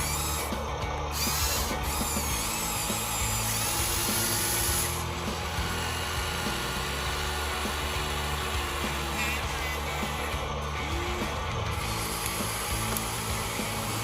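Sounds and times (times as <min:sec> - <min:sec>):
background music: 0:00.0 - 0:14.0
higher motor whine: 0:00.0 - 0:14.0
small electric motors whining: 0:00.0 - 0:14.0.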